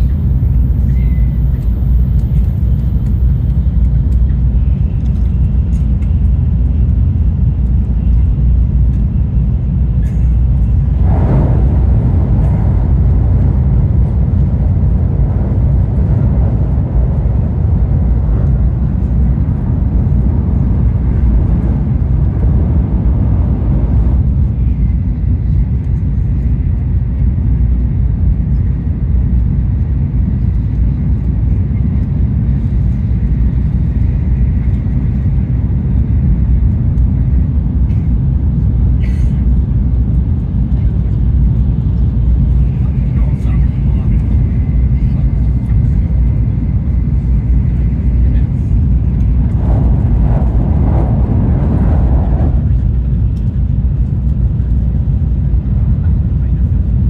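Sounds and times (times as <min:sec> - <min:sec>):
train cabin rumble: 0:00.0 - 0:57.0
train rushing noise: 0:09.5 - 0:26.8, 0:43.9 - 0:55.8.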